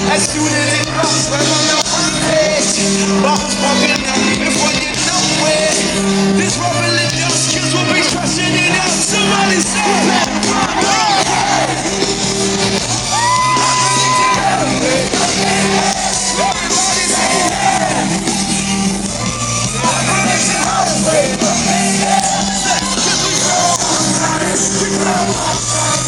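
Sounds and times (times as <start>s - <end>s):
live pop band music: 0.0s - 26.0s
person singing lead vocal: 0.0s - 26.0s
crowd shouting along: 8.6s - 26.0s.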